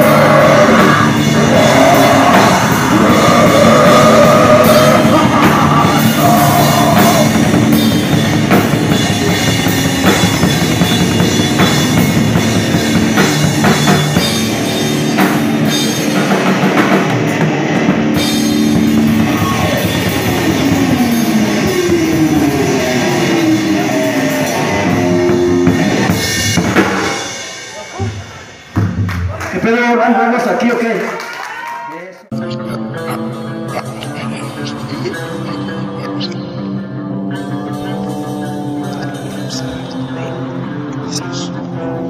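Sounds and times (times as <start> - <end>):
person singing: 0.0 - 7.8, 32.3 - 42.0
heavy rock band playing: 0.0 - 30.0, 32.3 - 42.0
sliding guitar notes: 32.3 - 42.0.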